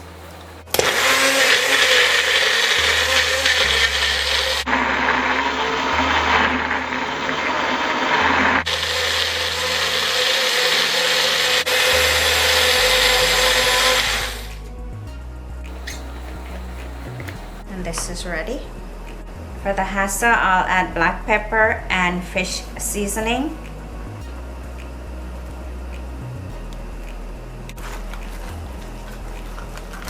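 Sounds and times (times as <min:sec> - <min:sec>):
electric blender running: 0:00.6 - 0:14.6.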